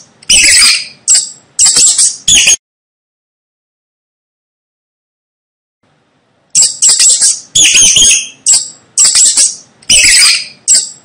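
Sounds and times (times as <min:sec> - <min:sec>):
mouse squeaking: 0:00.0 - 0:02.6, 0:06.6 - 0:11.0.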